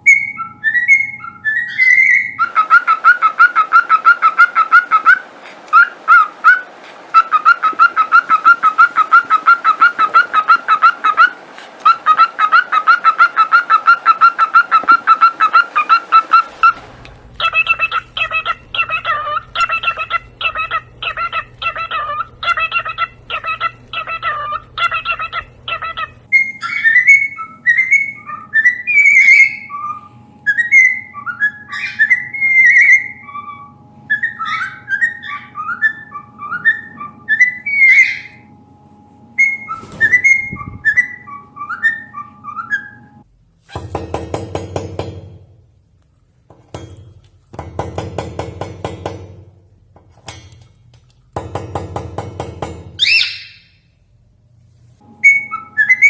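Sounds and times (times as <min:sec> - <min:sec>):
parrot whistling chirpy notes: 0:00.0 - 0:05.2, 0:26.3 - 0:38.5, 0:39.3 - 0:43.2, 0:53.0 - 0:53.8, 0:55.1 - 0:56.0
parrot harsh calls: 0:00.0 - 0:16.7, 0:17.4 - 0:38.5, 0:39.4 - 0:43.8, 0:53.0 - 0:53.9, 0:55.2 - 0:56.0.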